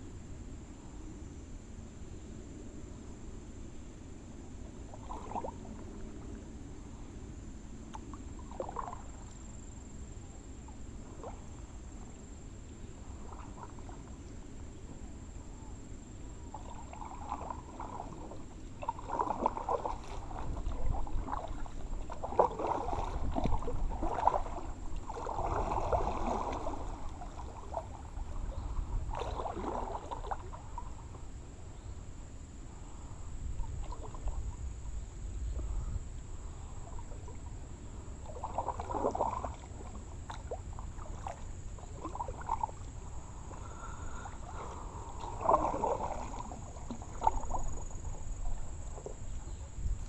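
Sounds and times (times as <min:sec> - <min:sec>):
paddle splashing in water: 0:04.8 - 0:06.6, 0:07.8 - 0:09.5, 0:13.0 - 0:15.1, 0:16.4 - 0:31.3, 0:33.6 - 0:35.8, 0:36.4 - 0:50.0.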